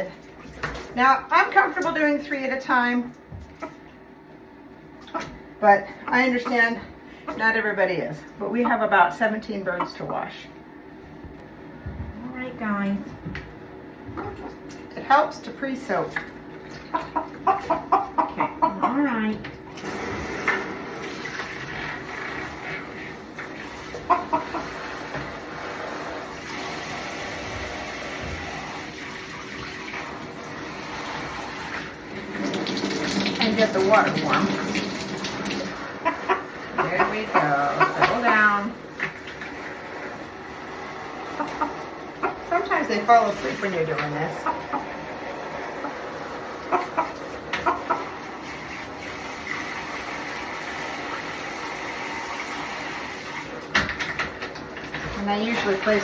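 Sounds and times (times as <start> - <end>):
chickens clucking: 5.0 - 7.7, 8.4 - 10.5, 16.2 - 19.4, 21.8 - 26.3, 35.6 - 40.0, 40.6 - 49.0
running water from tap: 19.6 - 56.0.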